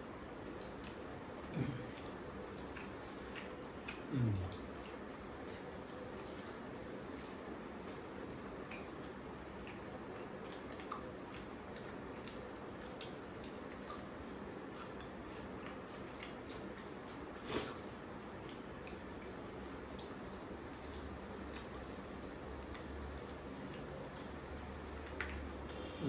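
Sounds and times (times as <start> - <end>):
soft chewing: 0.0 - 26.0.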